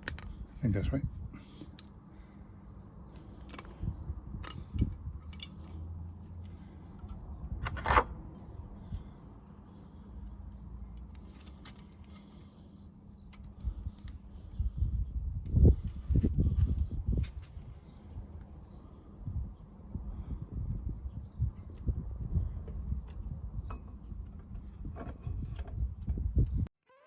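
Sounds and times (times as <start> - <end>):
metallic clicks and clinks: 4.4 - 7.2, 8.5 - 14.2.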